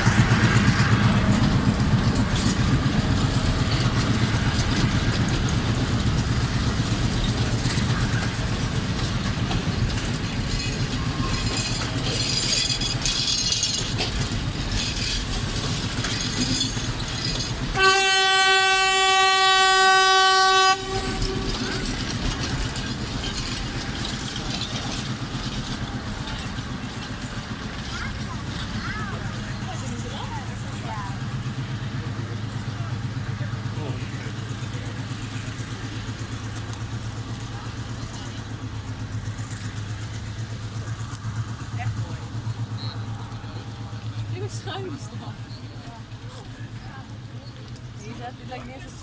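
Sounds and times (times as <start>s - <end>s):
train rumbling on rails: 0.0s - 49.0s
train horn: 17.8s - 21.9s.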